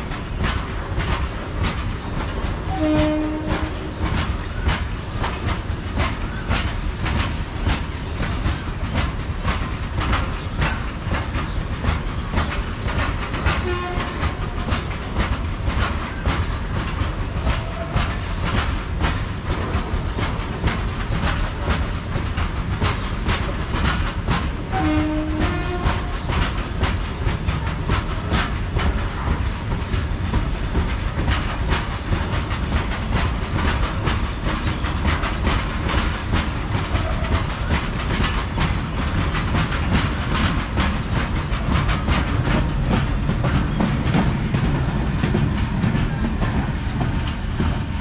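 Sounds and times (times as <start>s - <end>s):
low train rumble: 0.0s - 48.0s
train wheels clickety-clack: 0.0s - 48.0s.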